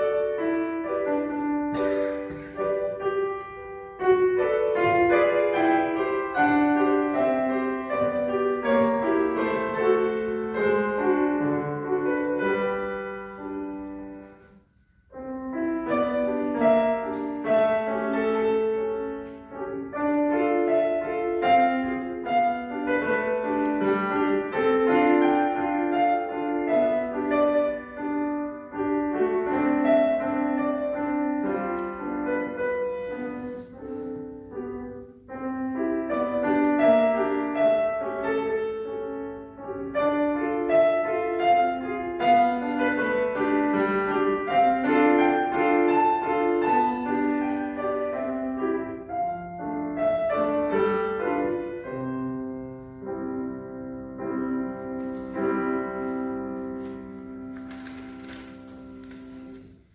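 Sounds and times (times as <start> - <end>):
solo classical piano: 0.0 - 59.9.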